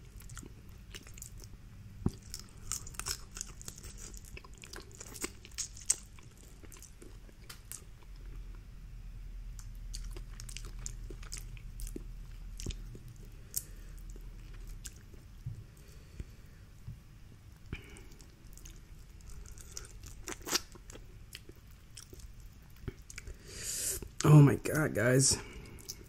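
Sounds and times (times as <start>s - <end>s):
wet chewing: 0.0s - 8.4s, 9.6s - 15.2s, 17.7s - 23.4s.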